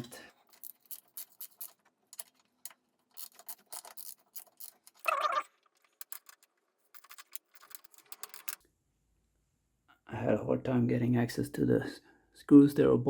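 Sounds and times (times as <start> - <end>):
metal clicks and scrapes: 0.0 - 8.6.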